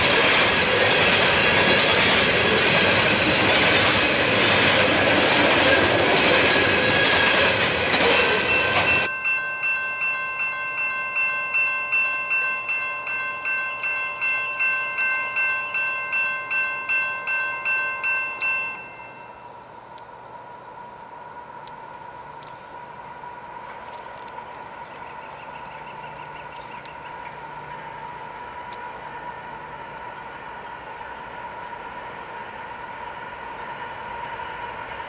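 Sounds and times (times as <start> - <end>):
train wheels rolling on rail: 0.0 - 35.0
crossing bell ringing: 5.5 - 19.6.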